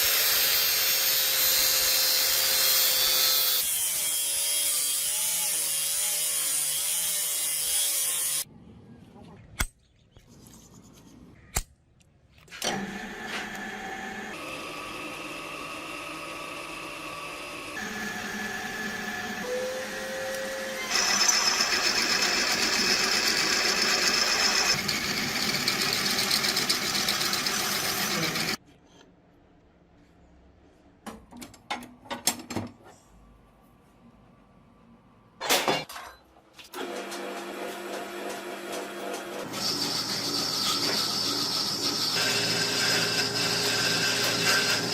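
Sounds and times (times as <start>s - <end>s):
small power tool running: 12.7s - 28.6s, 39.4s - 44.9s.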